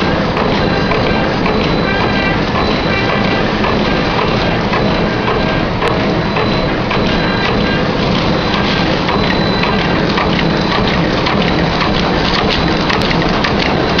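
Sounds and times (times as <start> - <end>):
machine clattering: 0.0 - 14.0.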